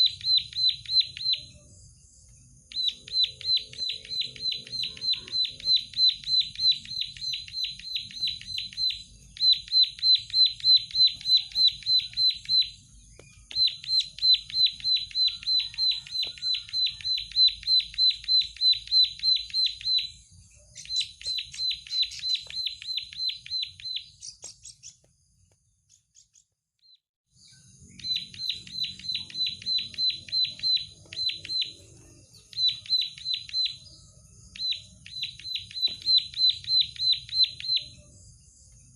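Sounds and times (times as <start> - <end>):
bird repeating sharp notes: 2.7 - 20.2, 28.0 - 33.8.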